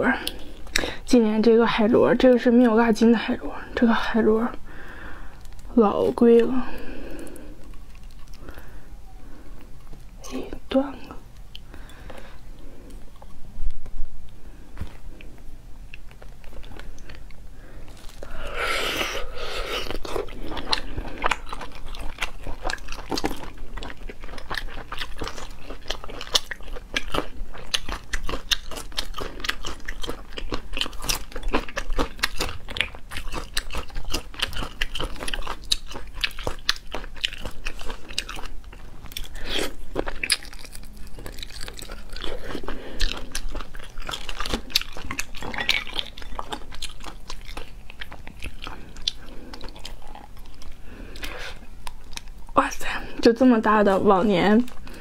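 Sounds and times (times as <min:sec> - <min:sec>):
person chewing wet crunches: 0:04.8 - 0:08.8, 0:11.0 - 0:52.6.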